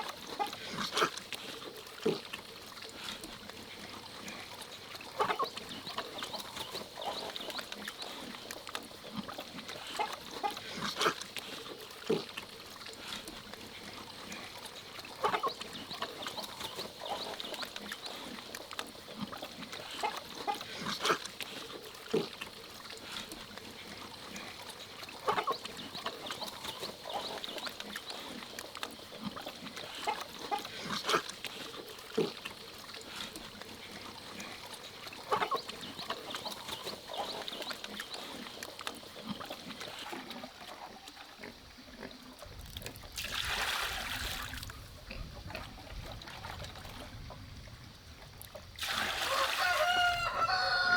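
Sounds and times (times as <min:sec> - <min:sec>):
hens clucking: 0:49.2 - 0:50.9.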